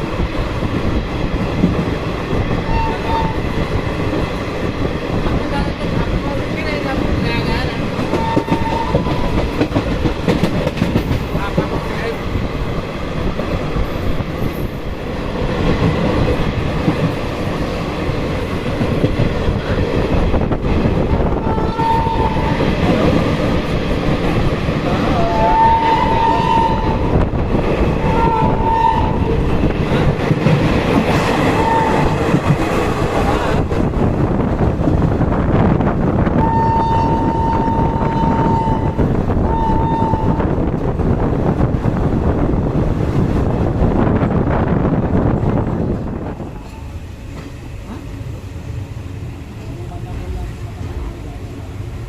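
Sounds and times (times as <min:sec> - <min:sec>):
train wheels rumbling on track: 0:00.0 - 0:52.0
train horn blasts: 0:02.7 - 0:03.5, 0:08.1 - 0:09.3, 0:21.4 - 0:22.6, 0:25.2 - 0:27.2, 0:28.0 - 0:29.4, 0:31.5 - 0:32.2, 0:36.4 - 0:40.5.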